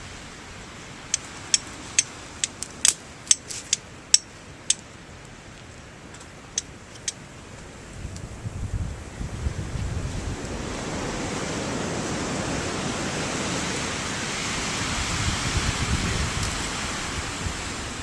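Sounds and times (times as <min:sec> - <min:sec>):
fire striker clicking on stone: 0:01.1 - 0:04.8, 0:06.1 - 0:07.2.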